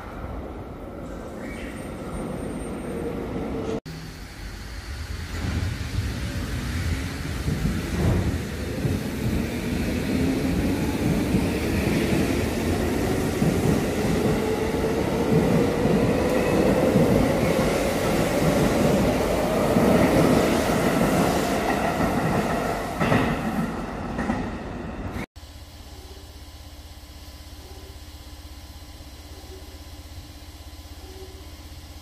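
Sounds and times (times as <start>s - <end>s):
wheels rumbling on rails: 3.5s - 24.6s.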